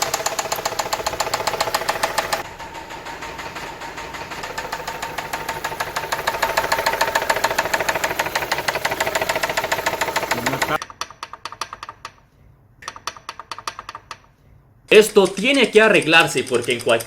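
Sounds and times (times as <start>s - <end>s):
car engine knocking: 0.0s - 10.8s.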